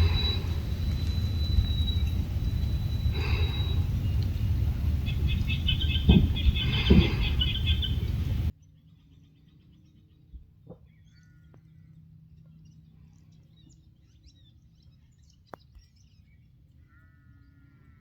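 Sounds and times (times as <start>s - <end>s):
faint high chirps: 0.0s - 8.5s
harsh drawn-out bird call: 0.0s - 8.5s.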